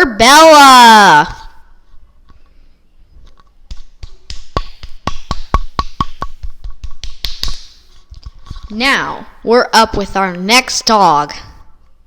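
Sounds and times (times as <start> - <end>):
hand clapping: 3.7 - 7.8.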